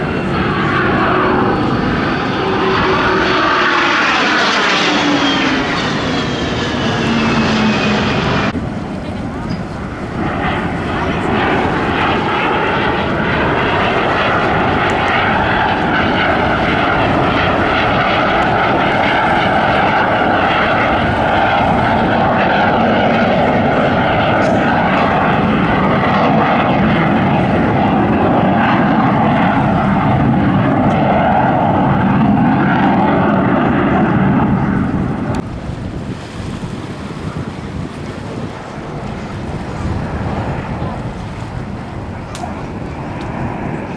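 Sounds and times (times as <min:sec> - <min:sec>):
jet aircraft flying past: 0:00.0 - 0:43.9.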